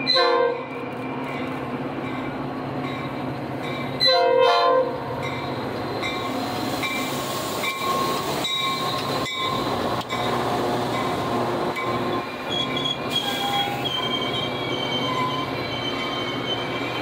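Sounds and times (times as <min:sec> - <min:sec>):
diesel locomotive engine running: 0:00.0 - 0:17.0
train horn blast: 0:00.1 - 0:00.6, 0:04.0 - 0:05.0.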